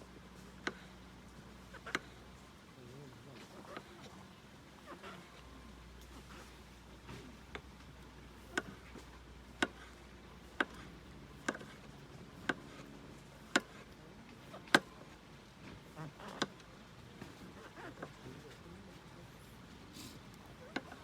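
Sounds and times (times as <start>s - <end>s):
low steady background noise: 0.0s - 21.0s.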